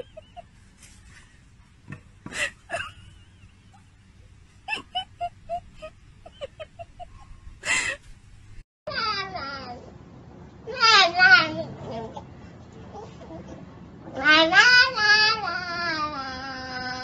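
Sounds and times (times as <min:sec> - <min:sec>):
breathy huffs: 0:02.2 - 0:02.7, 0:07.1 - 0:08.1.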